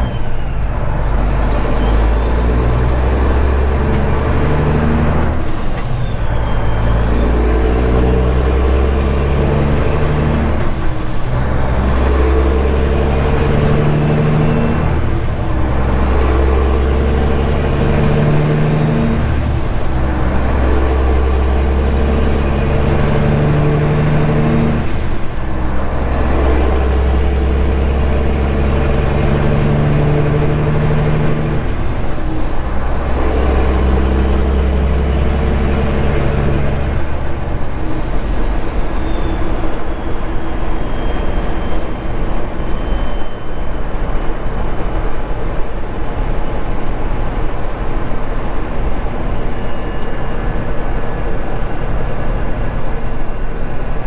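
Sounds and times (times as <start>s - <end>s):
diesel truck engine accelerating: 0.0s - 54.0s
turbo whistle: 12.0s - 44.1s.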